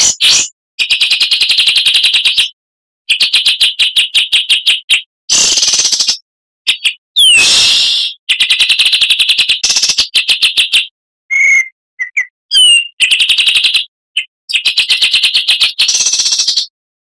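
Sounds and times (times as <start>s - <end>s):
bird clear whistles: 4.9s - 8.6s, 11.3s - 13.0s.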